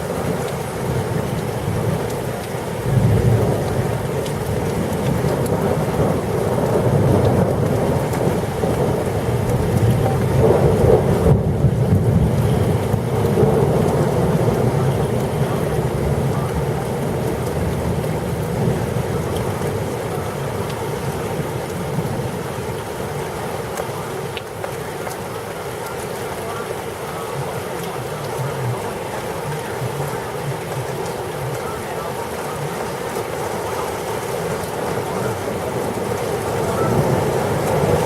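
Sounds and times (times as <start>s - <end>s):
heavy rain pouring: 0.0s - 38.0s
rolling thunder: 2.8s - 22.6s, 33.9s - 38.0s.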